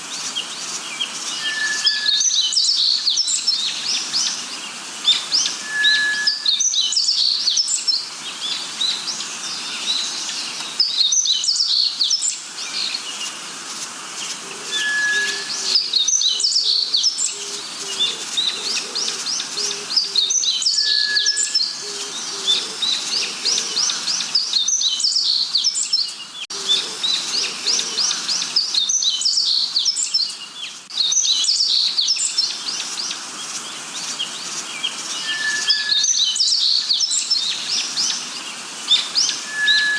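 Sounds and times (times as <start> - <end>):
bird chirps and trills: 0.0 - 39.9
whistled bird note: 1.4 - 3.2, 5.5 - 7.4, 14.7 - 16.8, 20.6 - 21.8, 35.2 - 37.0, 39.2 - 39.9.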